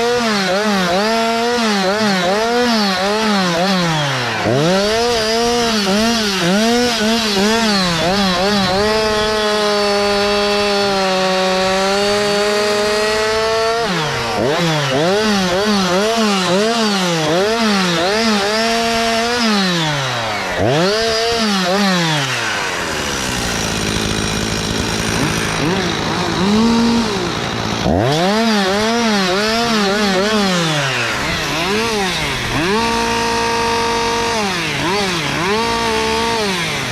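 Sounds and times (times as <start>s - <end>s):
chainsaw cutting wood: 0.0s - 36.9s.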